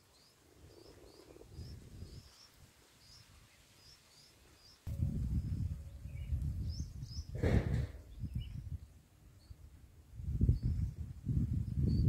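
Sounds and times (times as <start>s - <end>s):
faint bird chirps: 0.0s - 9.7s
low rumbling noise: 4.9s - 8.9s.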